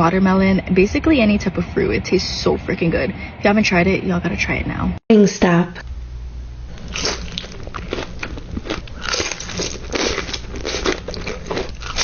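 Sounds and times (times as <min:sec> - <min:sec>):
crisp food crunching: 0:06.8 - 0:12.0.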